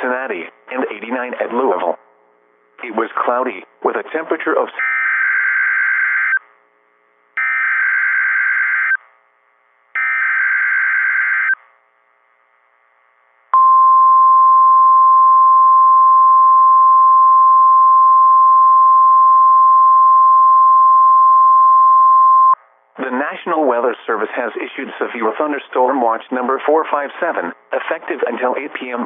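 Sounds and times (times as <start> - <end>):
steady single-pitch alarm tone: 4.8 - 6.5, 7.4 - 9.1, 9.9 - 11.7, 13.5 - 22.6.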